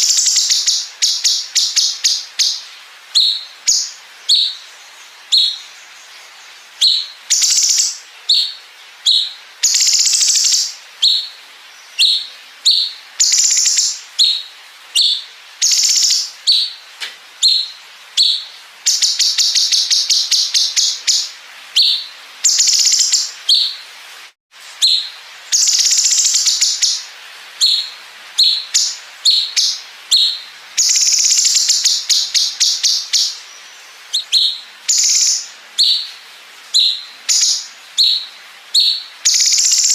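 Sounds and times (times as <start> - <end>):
bird singing sharp high calls: 0.0 - 23.9, 24.7 - 39.9.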